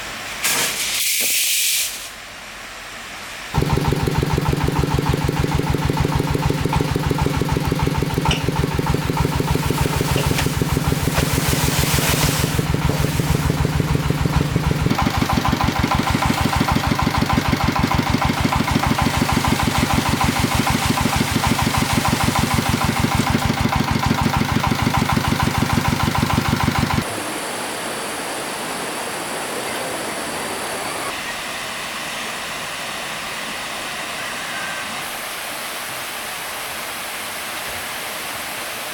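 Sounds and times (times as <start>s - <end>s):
diesel engine thudding: 3.6s - 27.0s
flowing water rushing: 8.0s - 14.6s.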